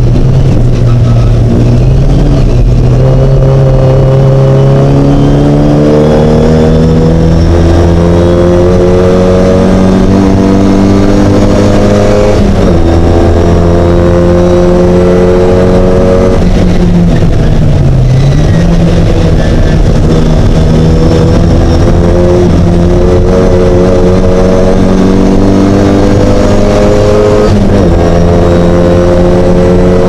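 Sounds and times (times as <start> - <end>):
race car engine accelerating: 0.0 - 30.0.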